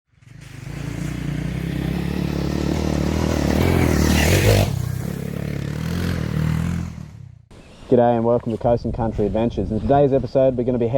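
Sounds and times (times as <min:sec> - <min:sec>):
motorcycle engine and exhaust: 0:00.1 - 0:07.6.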